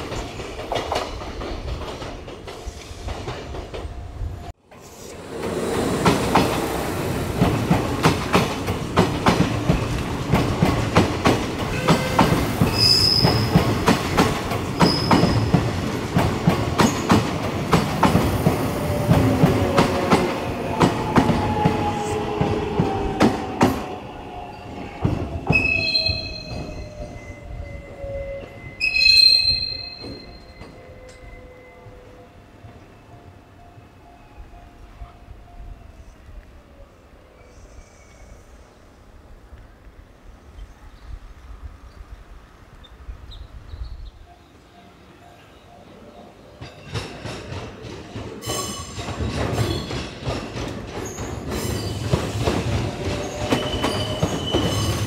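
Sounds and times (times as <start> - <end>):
train wheels squealing: 11.8 - 13.7, 14.8 - 15.6, 21.3 - 32.2, 37.3 - 38.8, 46.6 - 55.0
train wheels clacking over rail joints: 46.6 - 55.0.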